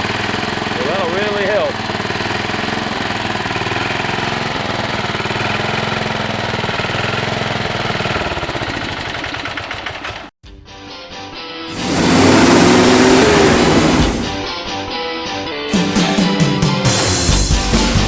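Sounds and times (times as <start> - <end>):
tractor engine idling: 0.0 - 10.3, 11.7 - 14.5.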